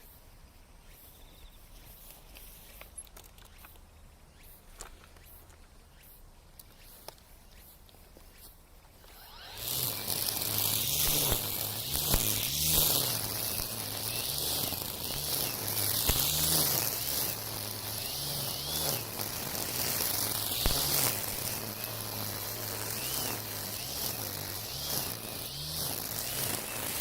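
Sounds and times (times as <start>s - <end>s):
hiss of slashing stems: 6.0s - 27.0s
electric brushcutter buzzing: 8.9s - 27.0s.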